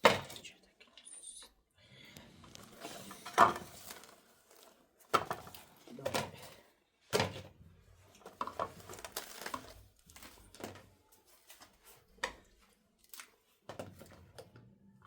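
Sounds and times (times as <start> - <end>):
objects clattering: 2.3 - 12.5.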